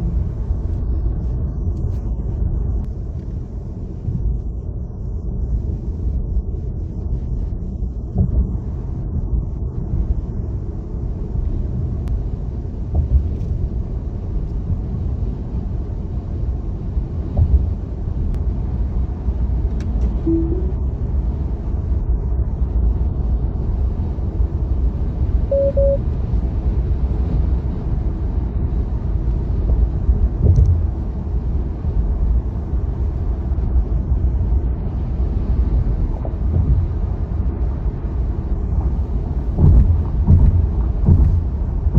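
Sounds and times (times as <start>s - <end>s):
road and tyre noise: 0.0s - 41.9s
short beeps: 20.3s - 20.9s, 25.5s - 26.0s
thumps: 39.6s - 41.9s.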